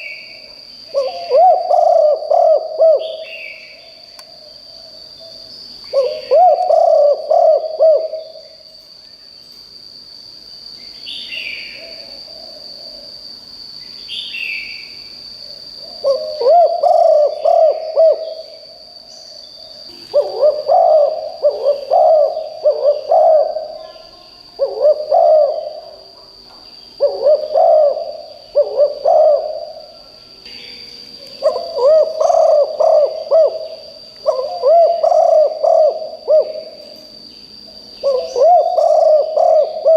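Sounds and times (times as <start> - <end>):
dove cooing: 0.0 - 3.7, 5.9 - 8.5, 15.8 - 18.7, 20.0 - 24.0, 24.6 - 26.2, 27.0 - 30.0, 31.4 - 37.1, 38.0 - 39.9
bird chirping: 0.0 - 9.6, 15.7 - 39.9.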